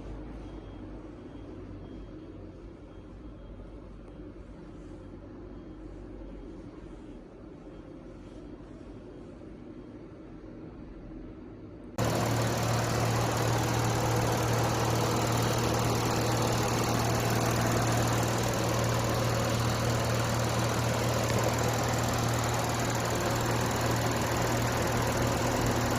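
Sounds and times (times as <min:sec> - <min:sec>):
car engine idling: 0:12.0 - 0:25.9.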